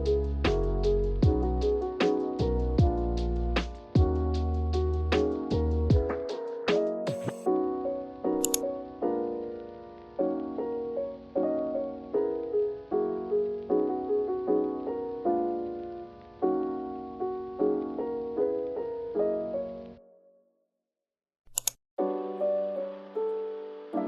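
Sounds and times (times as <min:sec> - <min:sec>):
soft piano music: 0:00.0 - 0:20.4, 0:22.0 - 0:24.0
short click: 0:21.5 - 0:21.8.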